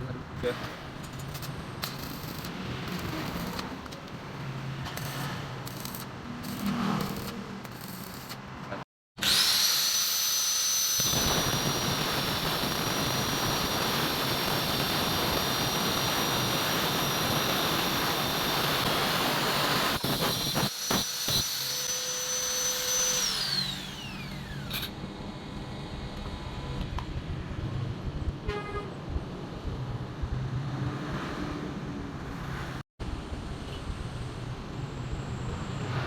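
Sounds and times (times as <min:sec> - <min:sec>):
blower fan motor whining: 0:09.2 - 0:20.0
motor winding down: 0:09.2 - 0:25.0.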